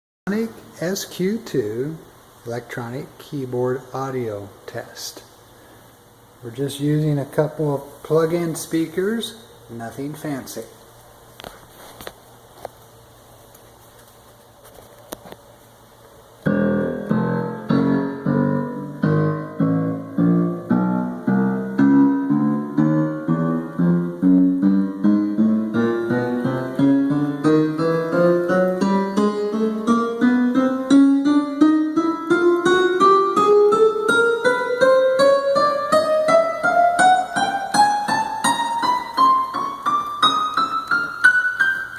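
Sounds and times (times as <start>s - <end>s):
synthesizer piano notes climbing: 16.4s - 41.9s.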